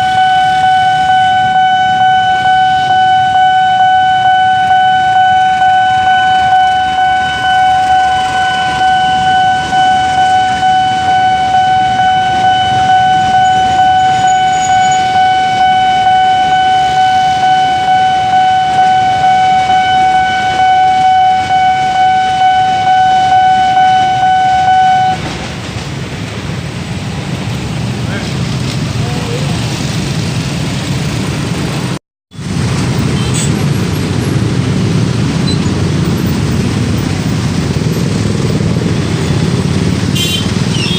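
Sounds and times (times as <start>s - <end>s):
level crossing alarm tone: 0.0s - 25.3s
road traffic rumble: 0.0s - 40.9s
train rumbling past: 17.2s - 40.9s.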